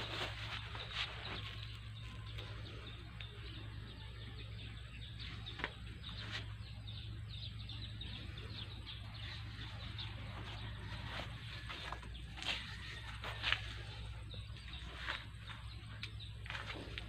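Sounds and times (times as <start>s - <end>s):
birds chirping: 0.0s - 17.0s
low steady hum: 0.0s - 17.0s.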